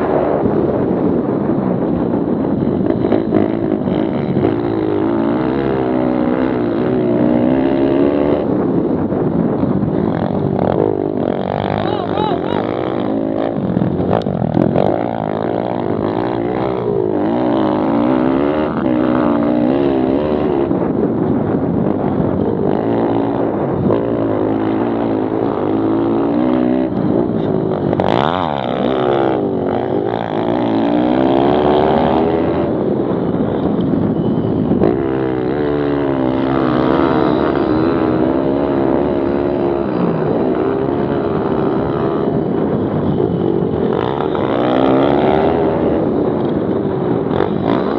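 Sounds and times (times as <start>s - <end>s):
small motorbike engines revving: 0.0s - 47.9s.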